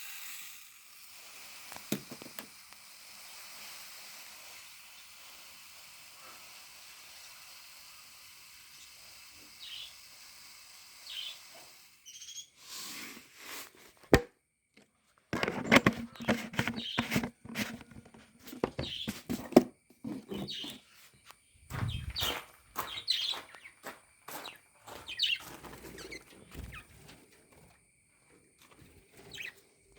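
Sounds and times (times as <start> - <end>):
faint steady hiss: 0.0 - 14.2
budgerigars chirping: 9.6 - 9.9, 11.0 - 11.4, 20.4 - 20.8, 24.4 - 26.8
sharp clicks and knocks: 14.1 - 19.8.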